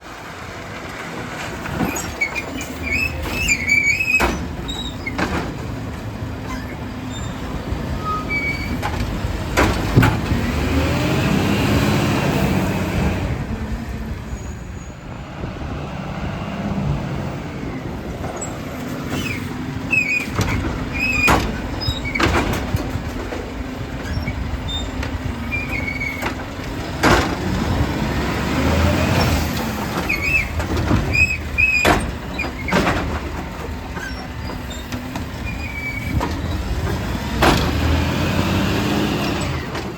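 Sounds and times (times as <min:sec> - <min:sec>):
garbage truck diesel engine: 0:00.0 - 0:39.9
high squeaks: 0:01.9 - 0:05.2, 0:06.4 - 0:09.0.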